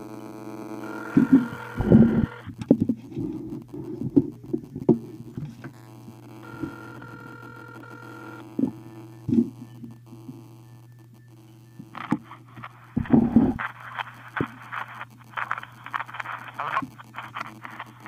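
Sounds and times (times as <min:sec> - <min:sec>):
steady hum: 0:00.0 - 0:18.0
telephone ringback tone: 0:00.8 - 0:02.5, 0:06.4 - 0:09.2
knocks and thumps: 0:01.2 - 0:03.4, 0:09.3 - 0:09.5, 0:13.0 - 0:13.6.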